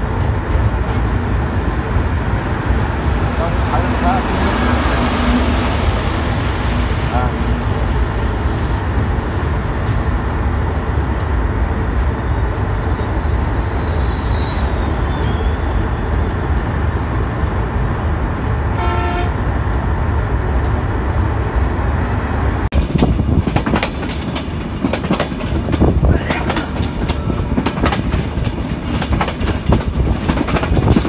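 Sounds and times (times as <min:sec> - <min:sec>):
train wheels rumbling: 0:00.0 - 0:31.0
train horn toot: 0:18.8 - 0:19.4
wheels clicking over rail joints: 0:22.7 - 0:31.0.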